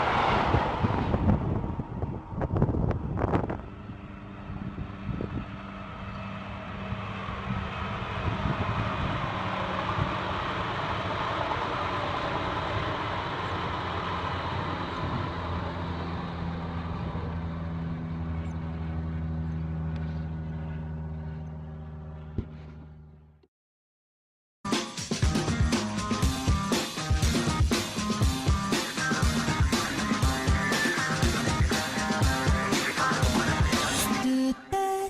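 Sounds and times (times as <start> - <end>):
train passing: 0.0 - 4.4, 5.5 - 16.8, 25.4 - 34.3.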